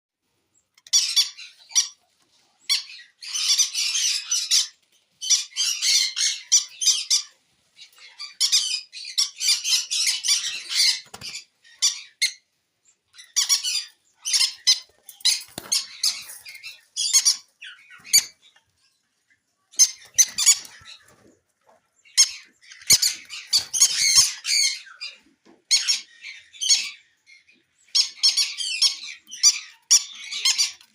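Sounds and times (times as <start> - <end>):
conures chattering and squeaking: 0.6 - 30.9.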